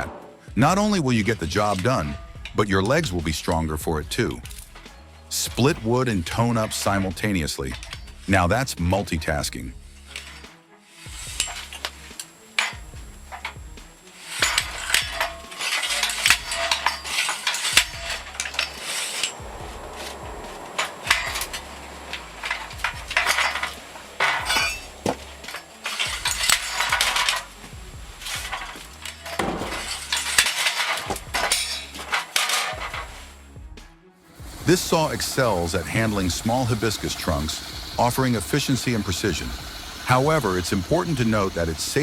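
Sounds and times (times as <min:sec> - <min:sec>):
background music: 0:00.0 - 0:42.0
hard objects clinking and clattering: 0:04.4 - 0:08.3, 0:09.9 - 0:33.4.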